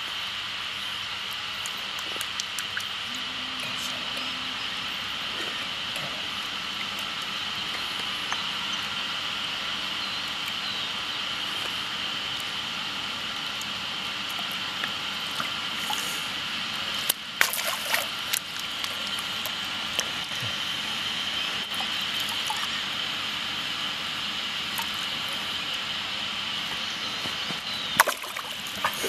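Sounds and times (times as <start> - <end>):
steady outdoor hiss: 0.0 - 29.0
water splashing and sloshing: 13.5 - 23.4, 26.7 - 29.0
sharp splashes: 17.4 - 18.9, 28.0 - 29.0.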